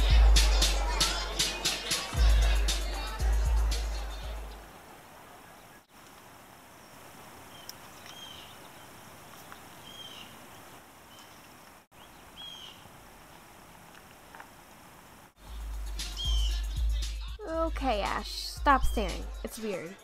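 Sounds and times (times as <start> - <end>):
faint outdoor background hiss: 0.0 - 20.0
short high bird chirps: 16.1 - 16.8.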